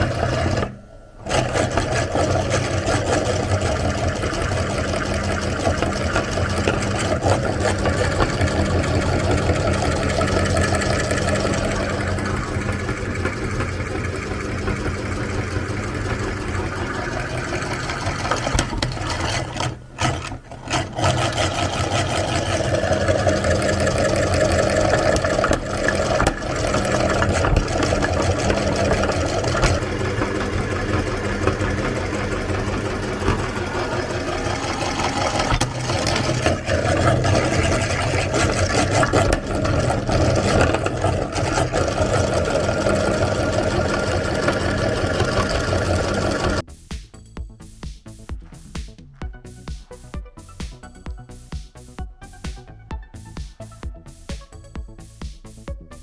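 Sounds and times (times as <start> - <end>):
electric meat grinder running: 0.0 - 46.7.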